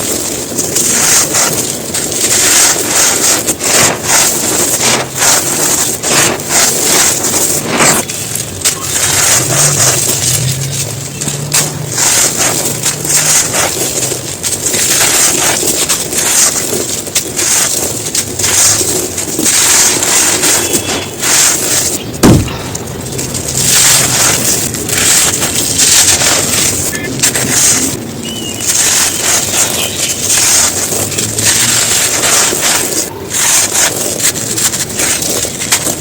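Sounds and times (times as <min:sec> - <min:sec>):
brittle material crunching: 0:00.0 - 0:36.0
heavy thump: 0:22.2 - 0:22.9.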